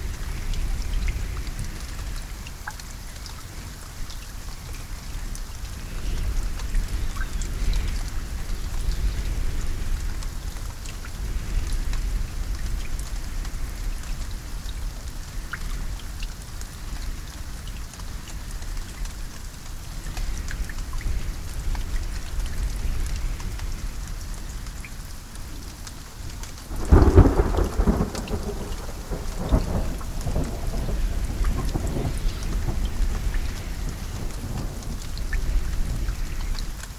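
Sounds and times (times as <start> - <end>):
steady rain: 0.0 - 36.9
thunder crack: 26.7 - 34.8.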